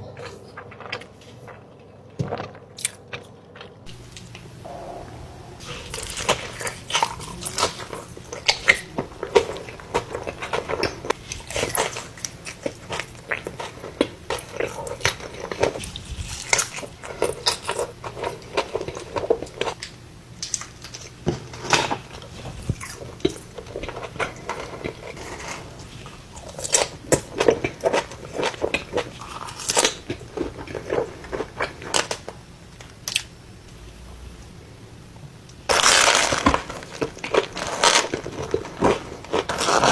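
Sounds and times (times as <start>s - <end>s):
wet chewing: 2.3s - 21.2s
crunchy bites: 2.3s - 33.3s, 35.6s - 39.9s.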